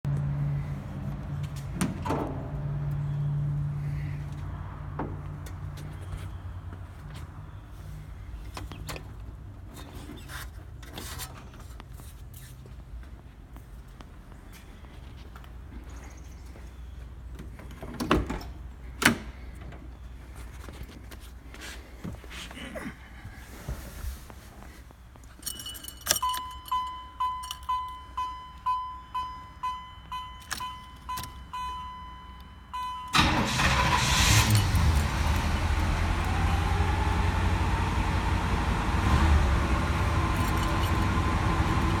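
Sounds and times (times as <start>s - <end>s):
keys jangling: 25.3s - 28.0s, 40.3s - 41.1s
dashboard warning chime dinging: 25.4s - 33.6s
car engine starting and idling: 26.2s - 42.0s.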